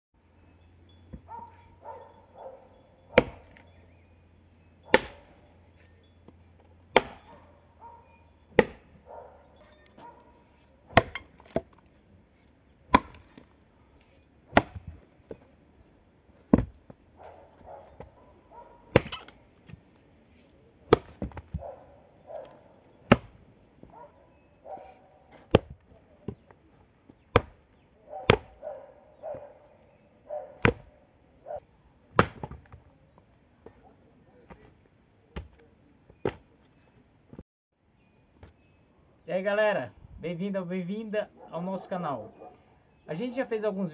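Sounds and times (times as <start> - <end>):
axe chopping firewood: 3.1 - 3.7, 4.9 - 5.4, 6.3 - 7.4, 8.5 - 9.0, 9.9 - 11.9, 12.8 - 13.6, 14.4 - 15.5, 16.4 - 18.2, 18.8 - 19.8, 20.9 - 23.9, 25.3 - 26.6, 27.2 - 28.7, 30.6 - 30.9, 32.1 - 32.8, 35.3 - 36.5.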